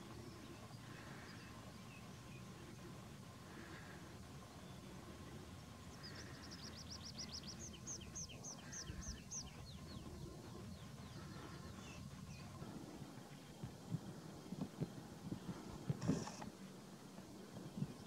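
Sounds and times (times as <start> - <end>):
bird singing: 0.0 - 2.9, 4.4 - 12.7
low background rumble: 0.0 - 18.0.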